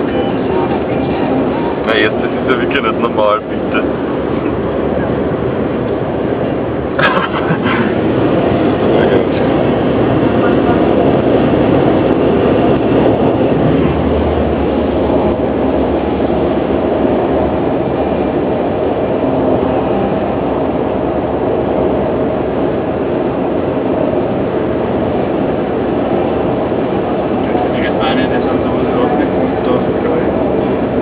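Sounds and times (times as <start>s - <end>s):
car cabin road and engine noise: 0.0s - 31.0s.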